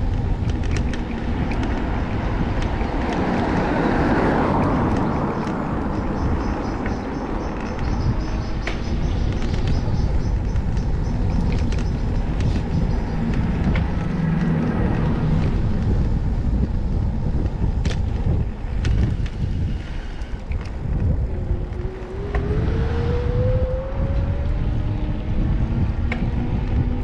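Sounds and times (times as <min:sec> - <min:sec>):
bicycle road noise: 0:00.0 - 0:27.0
traffic: 0:00.0 - 0:27.0
wind rumble on microphone: 0:00.0 - 0:27.0
rising whine: 0:20.9 - 0:27.0.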